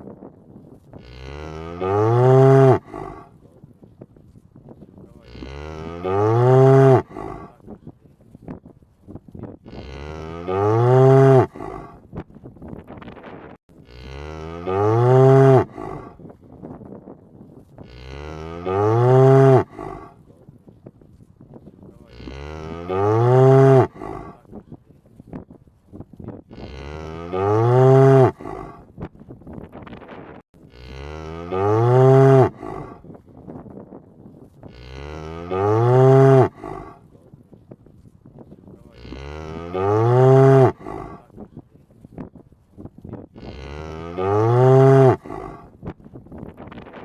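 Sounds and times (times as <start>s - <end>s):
cow mooing: 1.0s - 3.3s, 5.2s - 7.6s, 9.7s - 12.0s, 13.8s - 16.2s, 17.8s - 20.2s, 22.0s - 24.4s, 26.5s - 28.8s, 30.7s - 33.0s, 34.7s - 37.0s, 38.9s - 41.3s, 43.4s - 45.7s.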